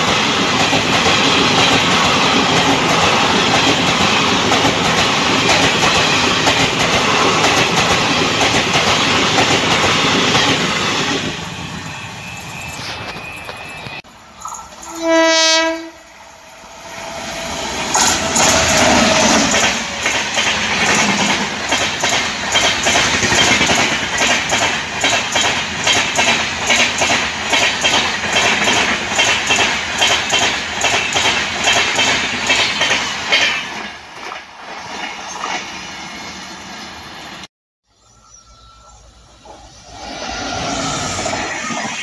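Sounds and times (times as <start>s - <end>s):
clickety-clack of train wheels: 0.0s - 14.8s, 17.7s - 36.2s
locomotive rushing past: 15.7s - 42.0s.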